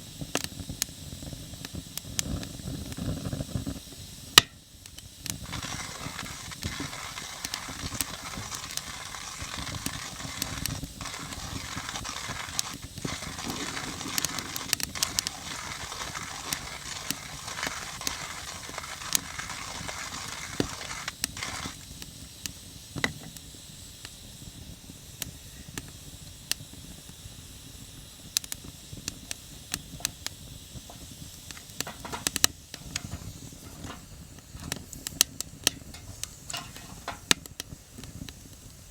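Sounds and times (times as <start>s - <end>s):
wood fire crackling: 0.1s - 23.6s, 28.3s - 38.9s
coffee grinder grinding beans: 5.2s - 22.1s, 30.9s - 37.4s.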